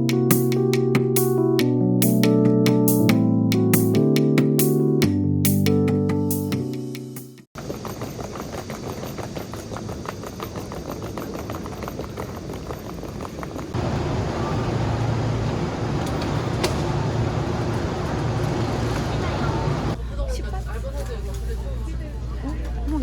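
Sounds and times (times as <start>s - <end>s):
fast run of clicks: 7.6s - 13.8s
traffic noise: 7.6s - 23.0s.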